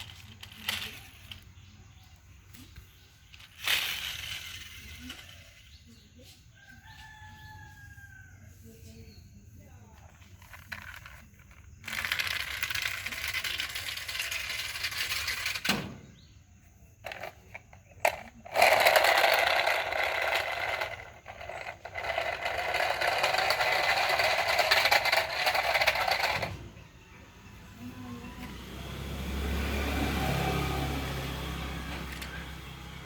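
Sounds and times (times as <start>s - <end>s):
toy cars rattling down a track: 0.0s - 6.0s, 10.0s - 15.8s, 17.0s - 26.7s, 31.5s - 33.0s.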